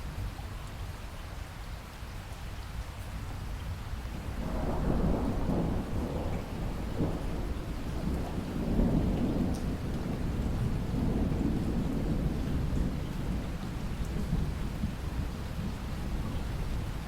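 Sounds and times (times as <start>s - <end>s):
heavy rain: 0.0s - 17.0s
rolling thunder: 4.3s - 17.0s.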